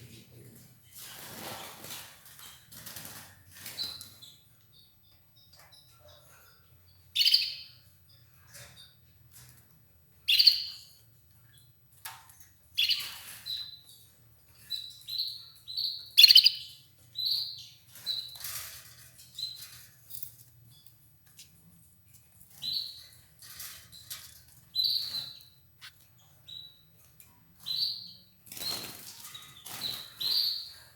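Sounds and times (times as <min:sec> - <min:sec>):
canary chirping: 0:01.0 - 0:12.0, 0:12.7 - 0:21.1, 0:22.3 - 0:30.9.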